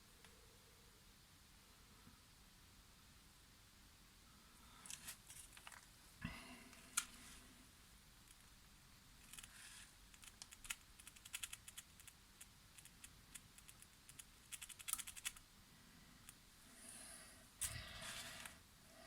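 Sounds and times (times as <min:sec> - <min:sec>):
small parts clicking and tapping: 0:10.1 - 0:15.4.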